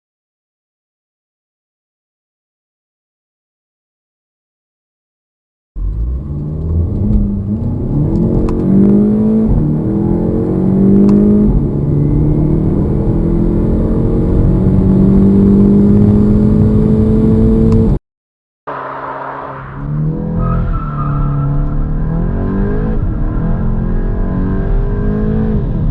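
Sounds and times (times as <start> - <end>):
car engine accelerating: 5.8 - 18.0, 18.7 - 25.9.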